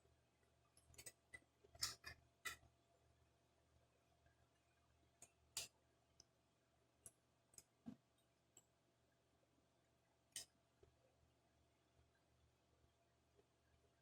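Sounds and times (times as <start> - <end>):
small tools clicking and tapping: 0.8 - 2.6.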